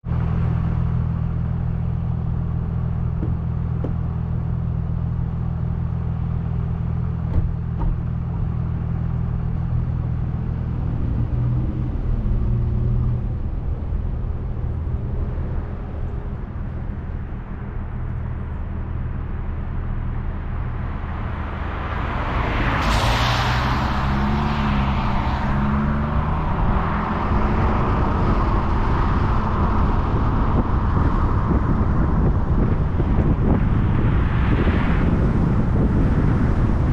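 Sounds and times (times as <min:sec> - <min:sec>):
car engine hum: 0:00.0 - 0:36.9
road noise: 0:00.0 - 0:36.9
small knocks: 0:03.2 - 0:04.0, 0:07.3 - 0:08.1.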